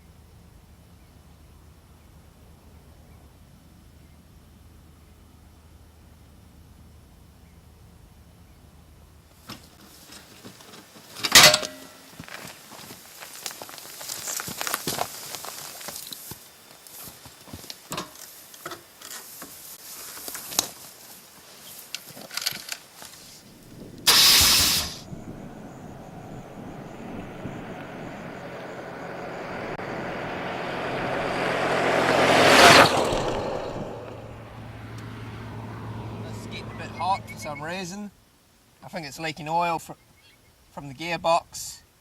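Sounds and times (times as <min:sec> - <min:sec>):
road vehicle passing: 0:23.2 - 0:37.9
sudden loud rush: 0:23.4 - 0:37.6.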